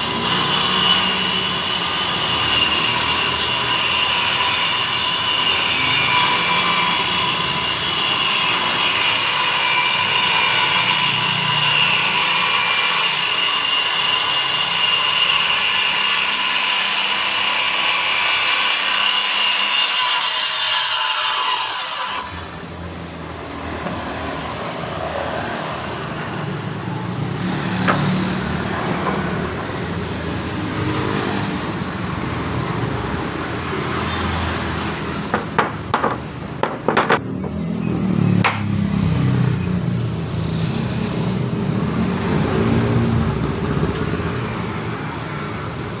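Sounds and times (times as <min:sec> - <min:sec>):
circular saw cutting wood: 0:00.0 - 0:37.2
knocks: 0:35.3 - 0:37.6.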